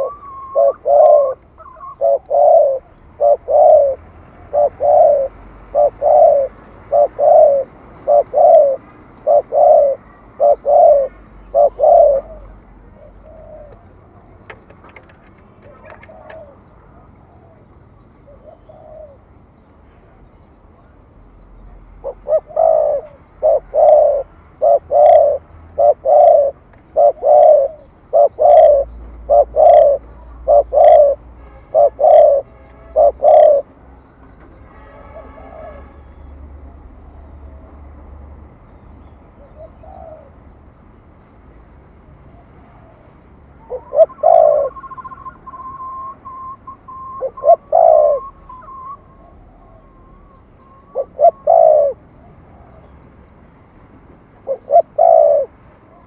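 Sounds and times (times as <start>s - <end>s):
dove cooing: 0.0s - 17.7s, 18.3s - 19.3s, 22.0s - 33.8s, 35.1s - 35.9s, 39.4s - 40.4s, 42.8s - 52.9s, 54.4s - 56.0s.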